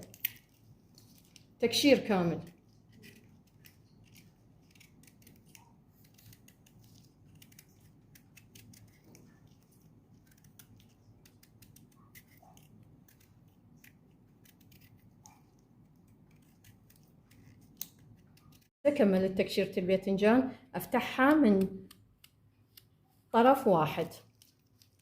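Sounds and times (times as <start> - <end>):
blade scraping eggplant skin: 0.0 - 18.7.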